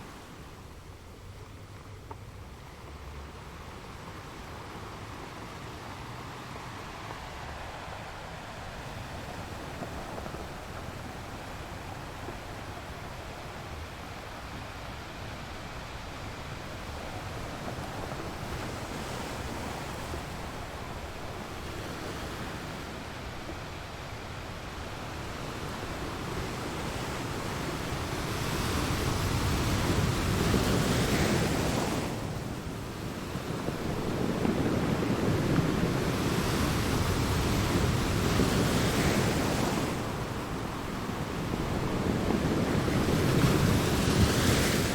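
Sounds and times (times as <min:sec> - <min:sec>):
ocean waves washing: 0:03.8 - 0:44.9.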